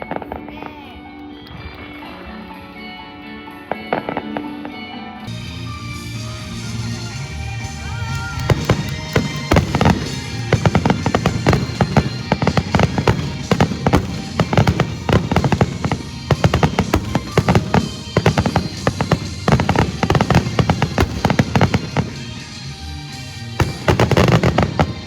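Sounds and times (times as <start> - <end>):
music playing: 0.0 - 25.0
fireworks bursting: 5.3 - 25.0.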